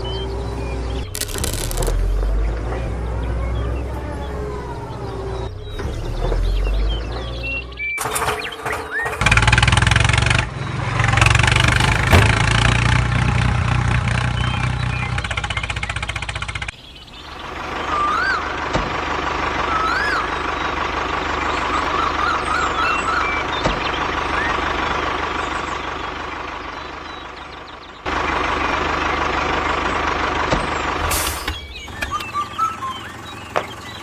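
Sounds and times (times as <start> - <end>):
motor running: 1.1 - 2.0
bird-like chirps: 21.4 - 24.7, 31.3 - 34.0.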